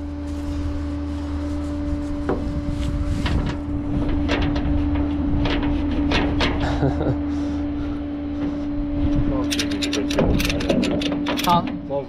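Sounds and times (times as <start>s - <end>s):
steady even hum: 0.0s - 12.0s
ratchet strap metallic clicks: 9.4s - 11.6s.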